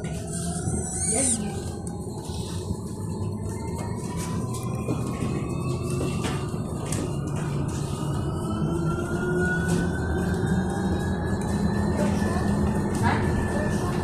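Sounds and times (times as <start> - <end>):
electric motor whining: 0.3 - 1.5.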